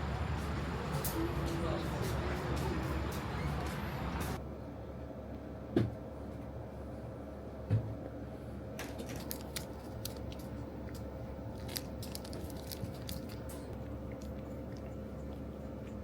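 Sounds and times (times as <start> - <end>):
faint steady hum: 2.4 - 16.0
sharp crisp clicks and crunches: 8.8 - 16.0.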